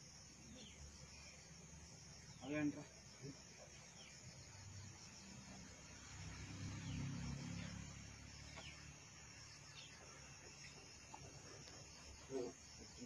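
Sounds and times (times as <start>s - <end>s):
high insect chirring: 0.0s - 13.0s
low rumble of distant vehicle: 3.0s - 12.2s.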